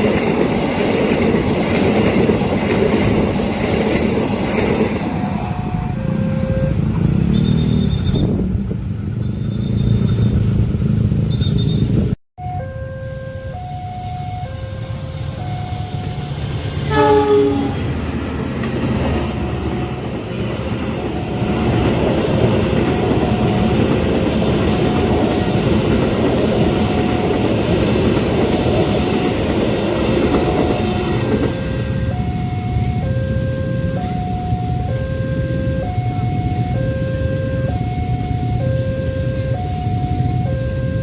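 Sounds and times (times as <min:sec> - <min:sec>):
train rumbling on rails: 0:00.0 - 0:12.2, 0:13.6 - 0:41.0
level crossing warning bell: 0:05.0 - 0:06.9, 0:12.4 - 0:17.9, 0:19.2 - 0:41.0
locomotive horn: 0:05.5 - 0:08.0, 0:12.6 - 0:18.1.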